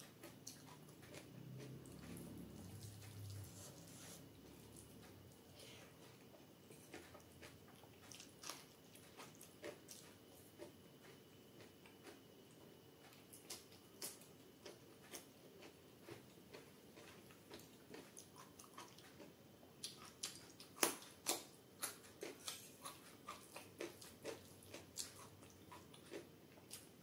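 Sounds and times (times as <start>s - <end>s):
raw carrot bitten and chewed: 0.1s - 5.4s, 6.0s - 12.3s, 13.0s - 27.0s
chewing food wet clicks: 13.0s - 26.9s.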